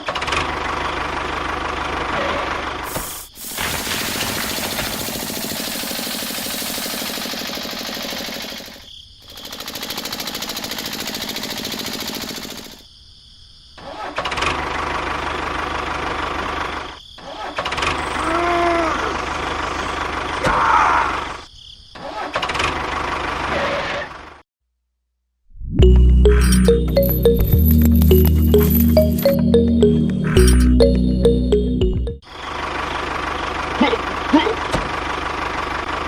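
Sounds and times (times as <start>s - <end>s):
small model motors running: 3.8s - 12.7s.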